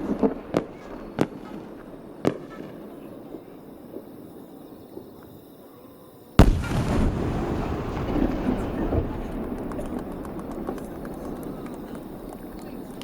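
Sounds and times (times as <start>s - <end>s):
firework shell boom: 6.4s - 12.2s
rolling rumble: 6.4s - 13.0s.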